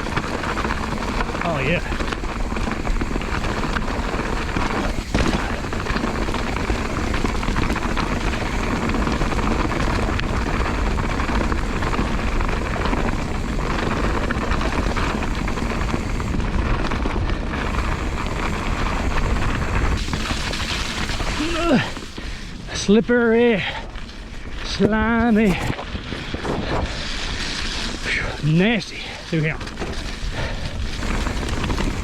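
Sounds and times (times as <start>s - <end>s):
bike rattles and knocks: 0.0s - 22.3s, 24.8s - 28.3s, 29.4s - 32.0s
bike tyre noise: 0.0s - 32.0s.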